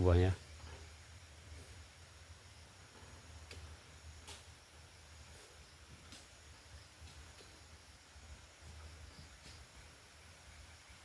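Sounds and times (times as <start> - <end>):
faint ticks: 2.9 - 4.6.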